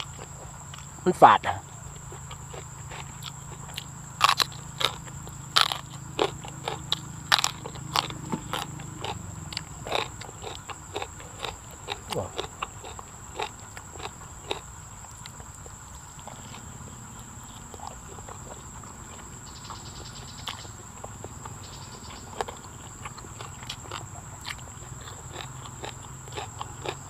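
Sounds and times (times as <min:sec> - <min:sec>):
chewing crunchy raw vegetables: 0:00.0 - 0:27.0.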